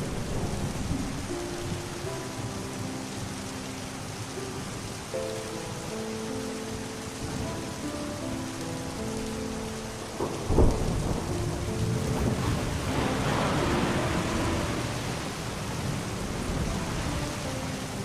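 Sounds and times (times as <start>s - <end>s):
thunder clap and rumble: 0.0s - 2.9s, 10.0s - 18.0s
heavy rain: 0.0s - 18.0s
soft music with held notes: 0.0s - 18.0s.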